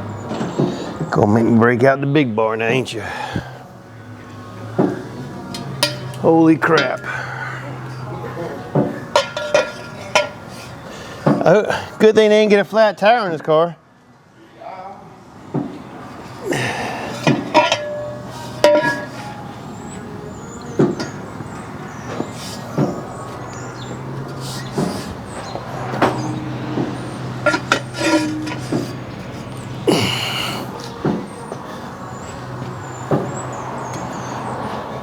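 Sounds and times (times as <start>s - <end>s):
metal tools clanking: 4.8s - 8.1s, 8.7s - 11.4s, 16.3s - 19.8s, 22.0s - 31.4s.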